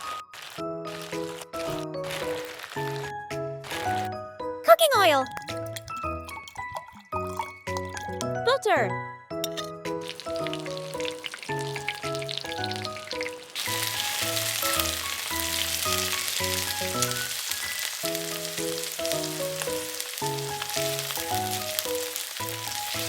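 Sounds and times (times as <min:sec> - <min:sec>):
chicken sizzling in oil: 0:00.0 - 0:04.1, 0:09.9 - 0:23.0.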